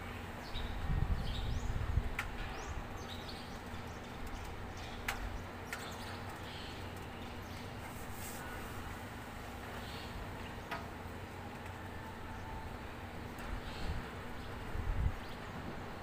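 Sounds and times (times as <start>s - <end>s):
small birds chirping: 0.4s - 8.7s.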